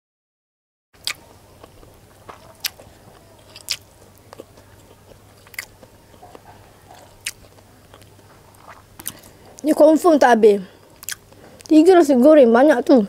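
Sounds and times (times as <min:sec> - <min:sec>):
person chewing food: 0:01.0 - 0:09.7, 0:10.8 - 0:11.7.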